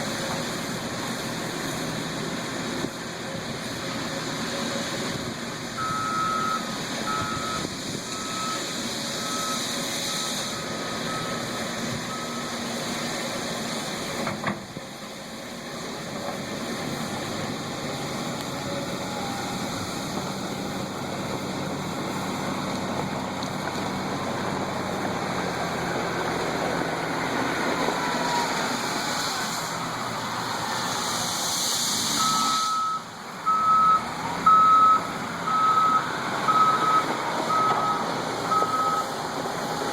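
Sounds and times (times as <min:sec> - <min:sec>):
backup alarm beeping: 0:32.2 - 0:39.1.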